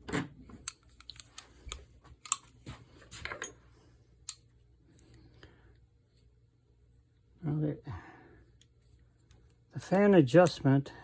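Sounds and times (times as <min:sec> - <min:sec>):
metal parts clicking and clinking: 0:00.6 - 0:02.5.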